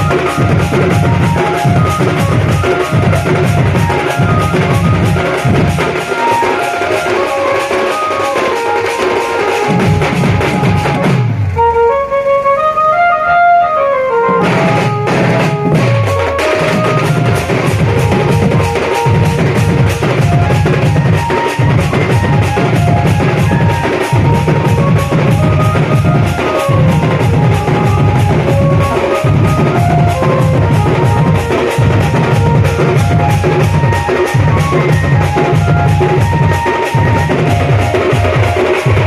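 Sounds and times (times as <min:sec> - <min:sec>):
fast drum beat: 0:00.0 - 0:11.5, 0:14.4 - 0:39.0
short-note melody line: 0:08.8 - 0:39.0.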